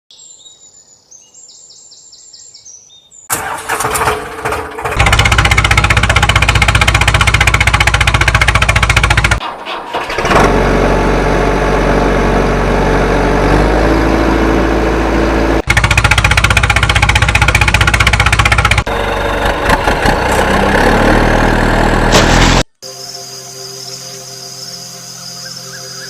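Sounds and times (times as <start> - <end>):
heavy vehicle engine running: 3.3 - 22.7.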